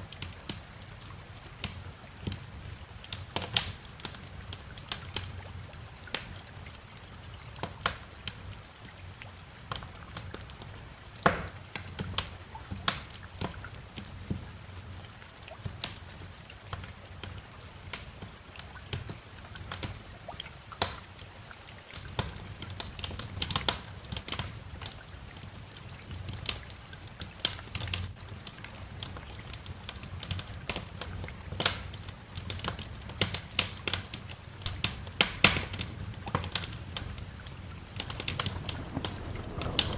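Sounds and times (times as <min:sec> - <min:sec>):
wood fire crackling: 0:00.0 - 0:21.3, 0:21.9 - 0:39.9
low fire rumble: 0:21.9 - 0:39.9.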